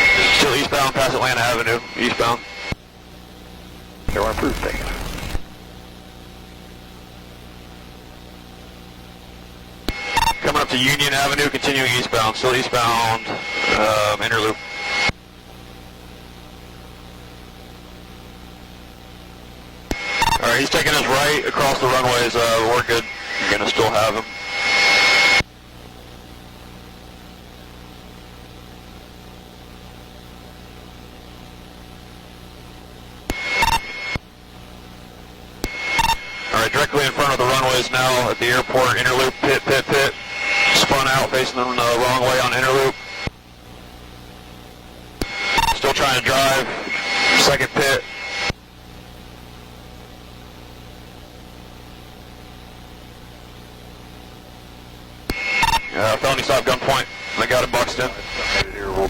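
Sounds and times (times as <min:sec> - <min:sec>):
flat hiss: 0:00.0 - 0:02.8, 0:09.7 - 0:15.6, 0:19.8 - 0:25.4, 0:33.2 - 0:48.6, 0:55.2 - 0:59.0
helicopter cabin drone: 0:00.0 - 0:16.0, 0:19.9 - 0:26.4, 0:33.2 - 0:49.1, 0:54.2 - 0:59.0.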